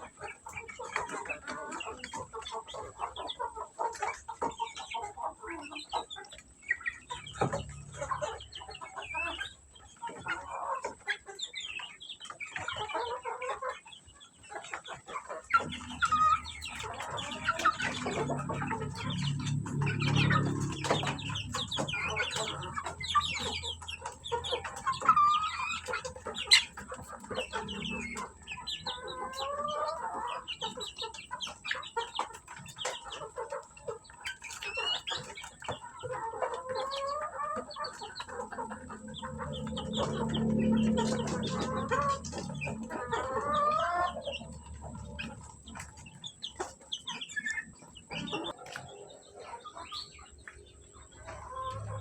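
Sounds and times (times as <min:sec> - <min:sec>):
chickens clucking and peeping: 0:00.0 - 0:52.0.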